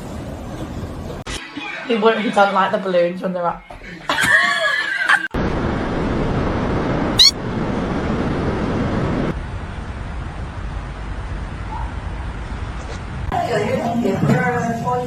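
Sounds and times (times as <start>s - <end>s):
steady rushing noise: 5.4s - 13.3s.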